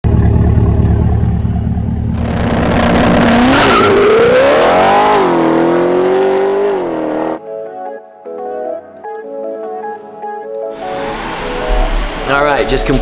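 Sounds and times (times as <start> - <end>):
loud car engine accelerating: 0.0 - 7.4, 10.8 - 13.0.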